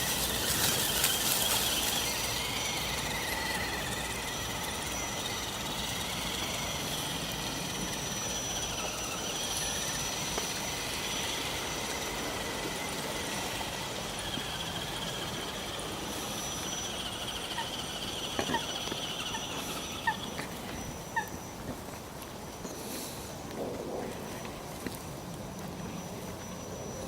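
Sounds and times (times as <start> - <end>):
toy car motor whining: 0.0 - 21.6.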